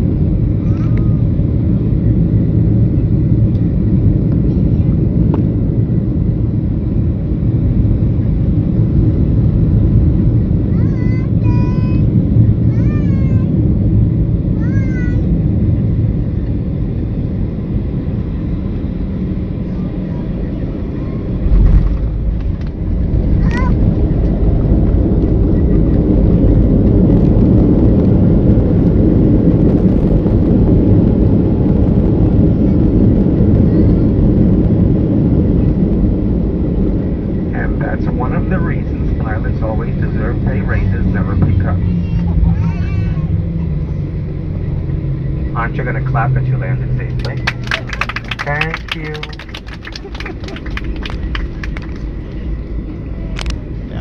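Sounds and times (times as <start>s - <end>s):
aircraft cabin engine rush: 0.0s - 54.0s
rollout rumble: 19.1s - 54.0s.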